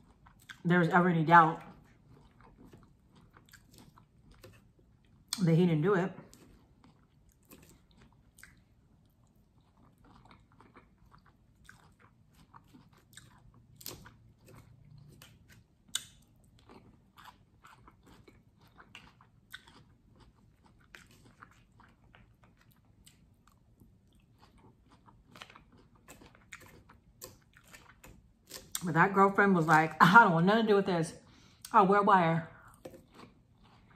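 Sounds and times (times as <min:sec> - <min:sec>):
person chewing crunchy food: 0:00.0 - 0:00.7, 0:01.4 - 0:05.4, 0:06.2 - 0:28.9, 0:32.6 - 0:33.9.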